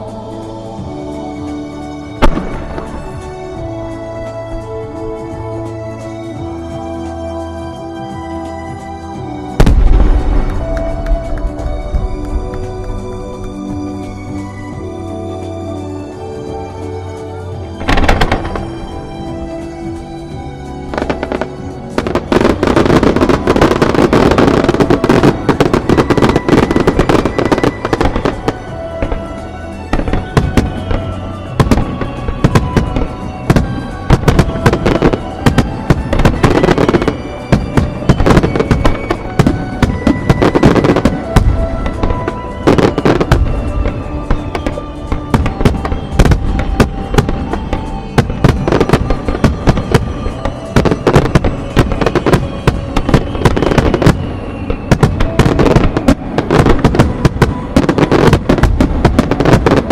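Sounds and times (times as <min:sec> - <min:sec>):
music playing: 0:00.0 - 0:59.9
firework shells bursting: 0:17.8 - 0:20.2.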